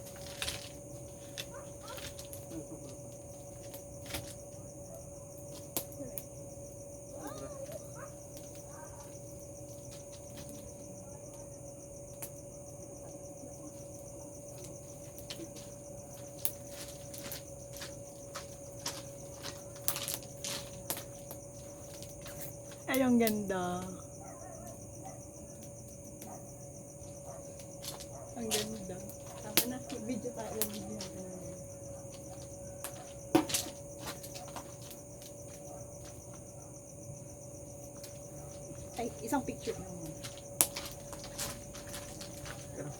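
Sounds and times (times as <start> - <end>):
bonfire crackling and popping: 0.0 - 36.5, 37.1 - 42.9
constant faint tone: 0.0 - 42.9
crickets chirring: 0.0 - 42.9
faint steady hum: 0.0 - 42.9.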